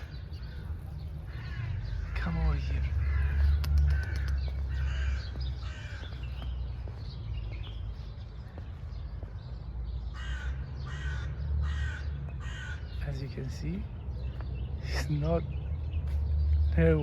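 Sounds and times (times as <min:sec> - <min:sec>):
crows cawing: 0:00.0 - 0:07.1, 0:09.9 - 0:13.3
steady low rumble: 0:00.0 - 0:10.1.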